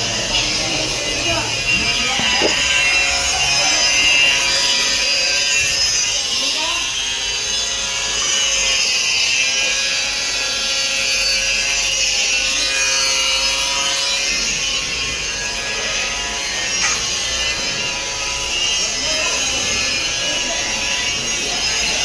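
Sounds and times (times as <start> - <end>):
tool rasping material: 1.7 - 3.9.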